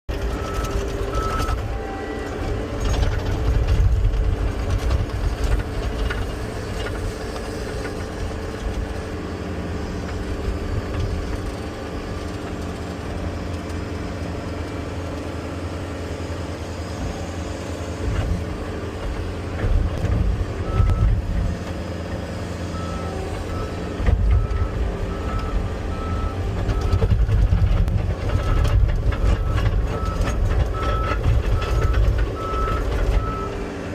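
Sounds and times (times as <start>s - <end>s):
loader diesel engine rumbling: 0.1s - 33.9s
reversing alarm beeping: 0.3s - 2.3s, 20.6s - 21.2s, 22.7s - 27.1s, 28.3s - 33.6s.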